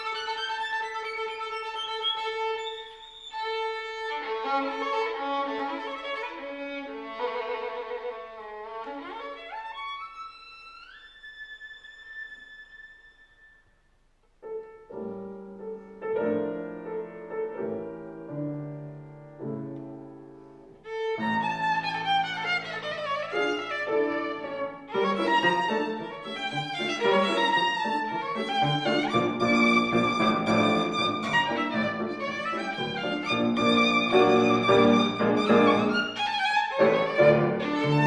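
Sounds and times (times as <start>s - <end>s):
violin playing: 0.0s - 13.4s, 20.8s - 38.0s
piano chords: 14.4s - 38.0s.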